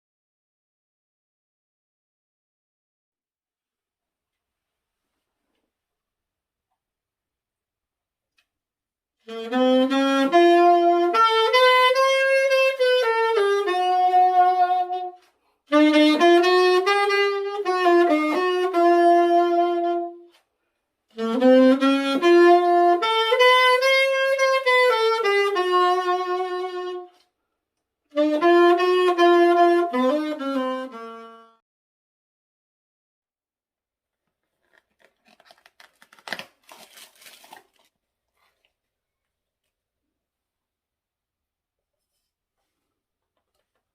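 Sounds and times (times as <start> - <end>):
muted saxophone melody: 9.2 - 20.4, 21.1 - 27.3, 28.1 - 31.6.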